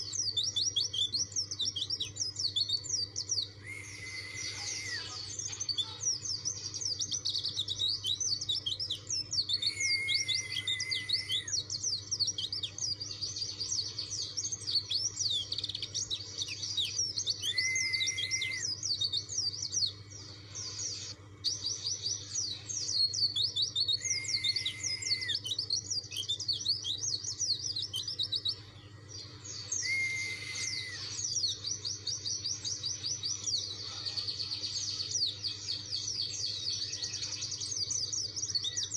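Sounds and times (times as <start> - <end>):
bird low held whistle: 3.6 - 5.3, 9.4 - 11.8, 17.3 - 19.0, 23.9 - 26.3, 29.7 - 31.5.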